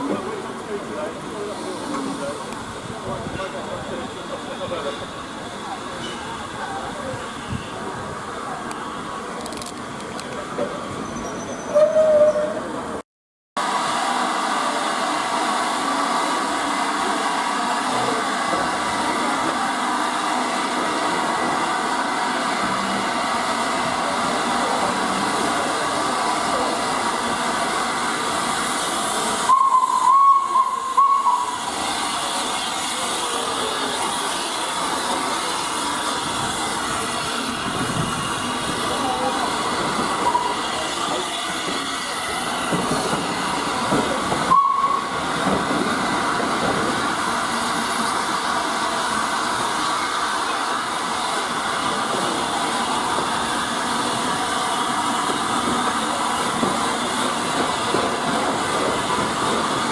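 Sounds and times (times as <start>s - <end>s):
steam hissing: 0.0s - 9.4s, 13.6s - 59.9s
steam locomotive whistle: 11.2s - 12.6s, 29.4s - 32.4s, 40.2s - 41.4s, 44.5s - 45.2s.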